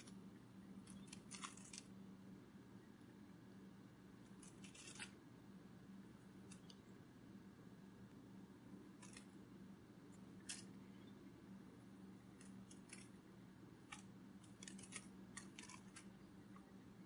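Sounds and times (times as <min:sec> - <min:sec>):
low steady hum: 0:00.0 - 0:17.0
faint crisp clicking: 0:06.4 - 0:06.8.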